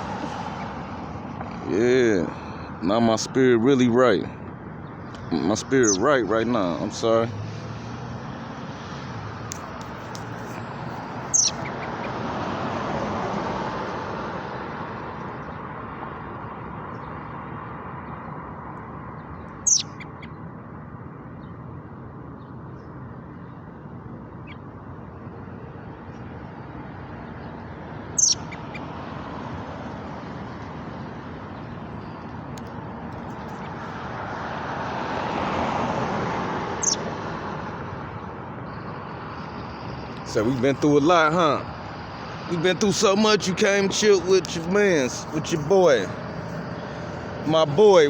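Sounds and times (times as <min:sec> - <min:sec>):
steady traffic noise: 0:00.0 - 0:48.0
vehicle passing: 0:00.0 - 0:48.0
small bird chirping: 0:04.9 - 0:06.0, 0:09.5 - 0:12.1, 0:19.2 - 0:20.4, 0:27.4 - 0:29.0, 0:36.8 - 0:37.1.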